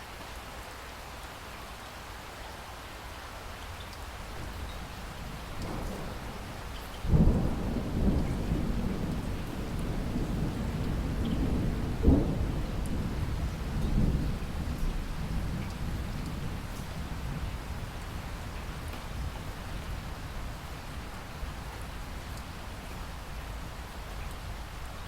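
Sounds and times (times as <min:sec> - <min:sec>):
steady rain: 0:00.0 - 0:25.0
thunder rolling: 0:05.3 - 0:20.6.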